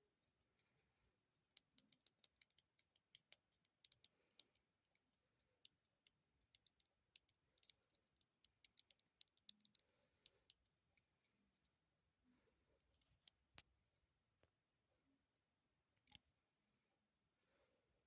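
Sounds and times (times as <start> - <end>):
light clicks and taps of handling: 0.6 - 11.8, 12.8 - 14.6, 16.0 - 16.3.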